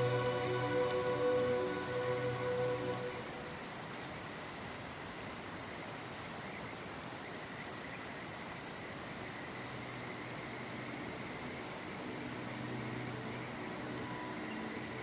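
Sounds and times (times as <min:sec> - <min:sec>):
low hum: 0:00.0 - 0:03.6
river flowing: 0:00.0 - 0:15.0.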